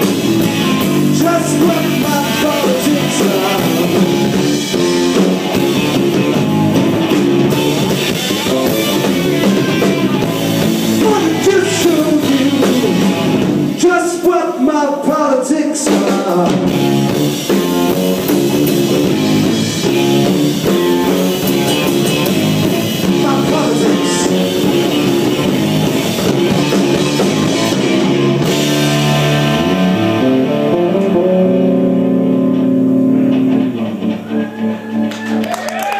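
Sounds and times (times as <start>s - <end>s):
drums: 0.0s - 35.9s
electric guitar: 0.0s - 35.9s
person singing: 1.1s - 4.4s, 10.9s - 13.2s, 13.8s - 16.8s, 23.0s - 25.0s.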